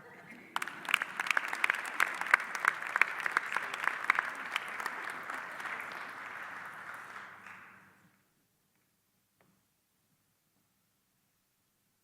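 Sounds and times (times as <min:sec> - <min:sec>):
audience applause: 0:00.0 - 0:08.0.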